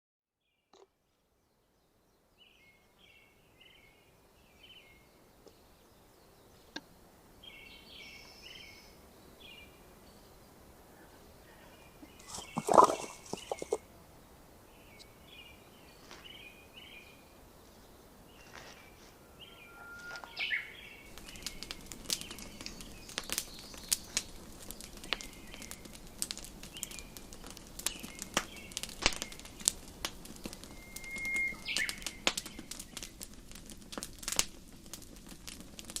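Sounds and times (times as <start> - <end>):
small birds chirping: 0.4 - 36.0
campfire crackling and popping: 12.0 - 13.8, 20.2 - 36.0.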